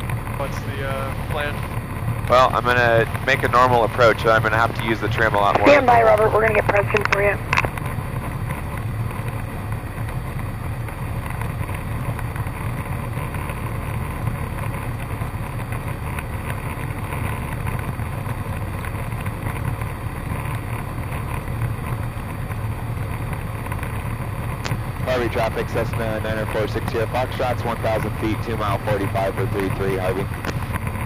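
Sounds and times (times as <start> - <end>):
light aircraft engine drone: 0.0 - 31.0.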